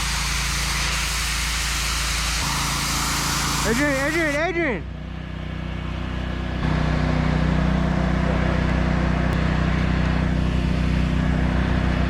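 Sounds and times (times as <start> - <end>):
engine humming: 2.4 - 12.0.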